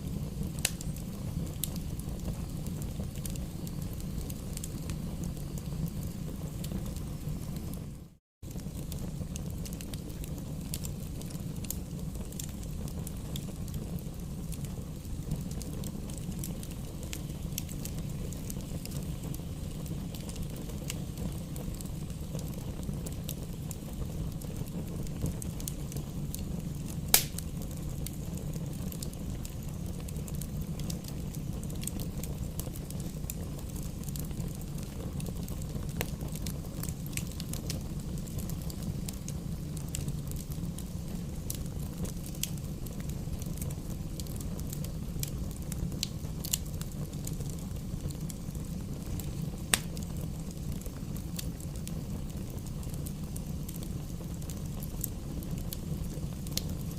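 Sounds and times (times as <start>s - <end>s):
campfire crackling: 0.0s - 56.9s
loud fire pop: 27.1s - 27.5s, 49.7s - 50.0s.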